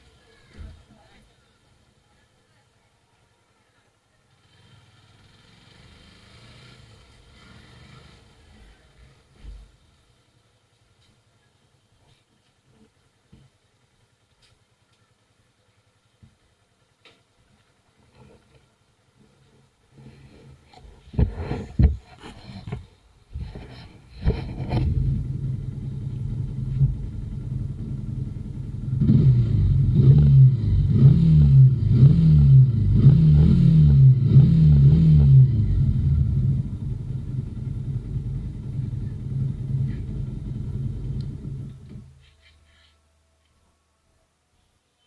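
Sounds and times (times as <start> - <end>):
motorcycle engine idling: 3.7 - 21.3, 24.3 - 42.4
motorcycle throttle blips: 20.7 - 42.4.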